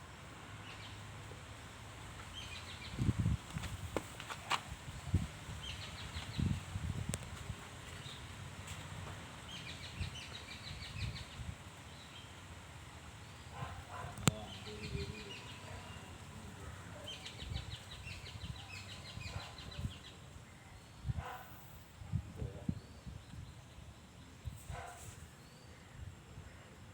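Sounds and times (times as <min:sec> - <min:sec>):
birds trilling: 0:13.3 - 0:20.3.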